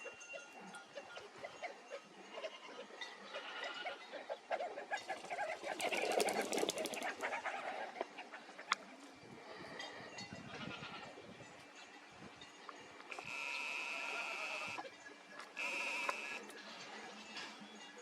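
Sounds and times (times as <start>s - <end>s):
sharp clicks or flutters: 5.6s - 7.3s.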